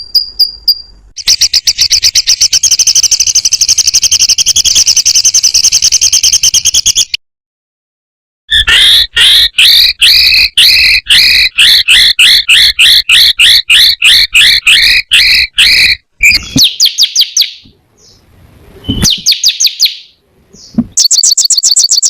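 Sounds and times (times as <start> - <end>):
small songbird singing: 0.0 - 7.2, 8.5 - 22.0.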